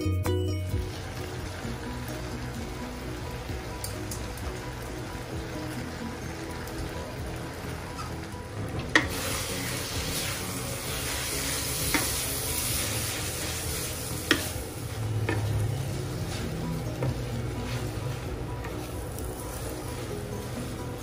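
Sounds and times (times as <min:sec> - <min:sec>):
noodles sizzling in a wok: 0:00.7 - 0:21.0
wooden spatula stirring noodles: 0:10.1 - 0:21.0
spatula knocking on pan: 0:14.3 - 0:14.5.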